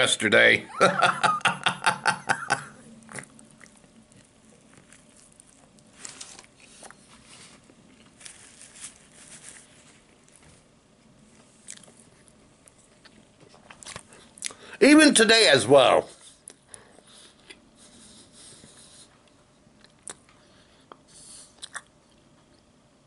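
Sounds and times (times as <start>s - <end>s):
faint chewing with soft crunches: 2.8s - 14.7s, 16.1s - 23.0s
paper napkin rustle: 4.8s - 10.7s.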